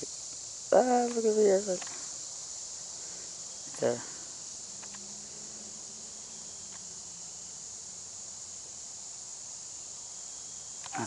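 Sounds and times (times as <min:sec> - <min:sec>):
high-pitched insect chorus: 0:00.0 - 0:11.0
faint clicks: 0:04.8 - 0:05.0.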